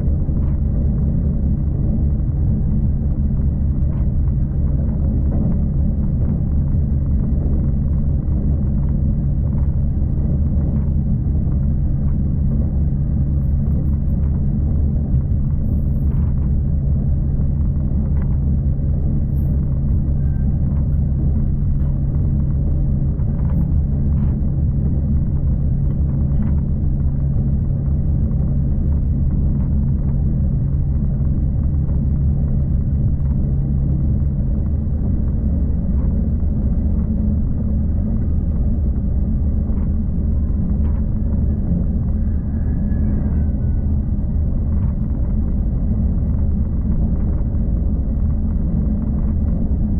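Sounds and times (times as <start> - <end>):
faint high whine: 0.0 - 35.0
train rumbling: 0.0 - 49.9.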